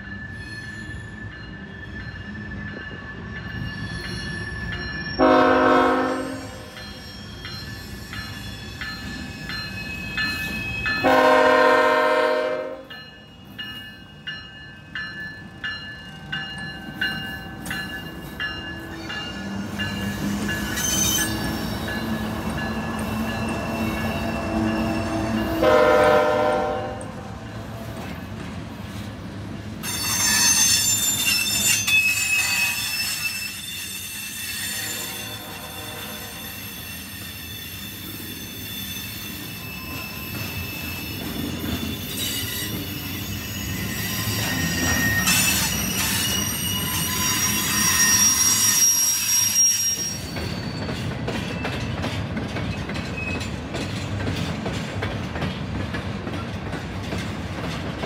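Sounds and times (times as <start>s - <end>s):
freight train wheel squeal: 0.0s - 26.7s, 27.3s - 58.0s
crossing bell ringing: 0.0s - 27.6s, 29.8s - 52.0s
locomotive air horn blasts: 5.2s - 6.7s, 11.0s - 12.9s, 25.6s - 27.3s, 34.8s - 36.4s.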